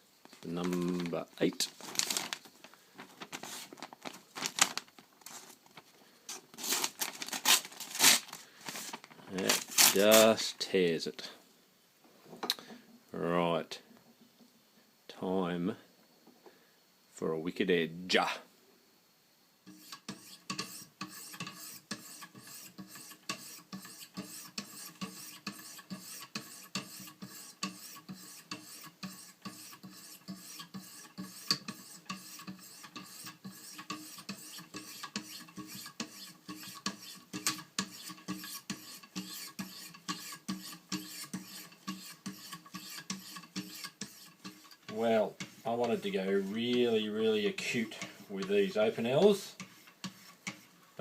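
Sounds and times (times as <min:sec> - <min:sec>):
sharpening stones rasping on blade: 0:19.7 - 0:44.8, 0:49.6 - 0:50.6.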